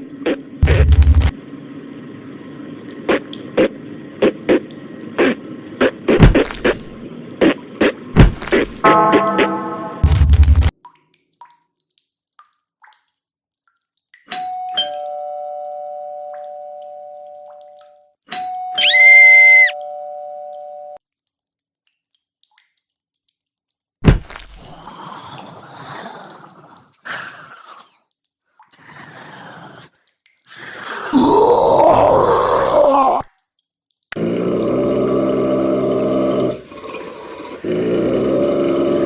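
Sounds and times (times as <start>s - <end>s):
noisy clatter: 0.6s - 1.3s
two-tone doorbell chime: 14.4s - 17.6s, 19.8s - 21.0s.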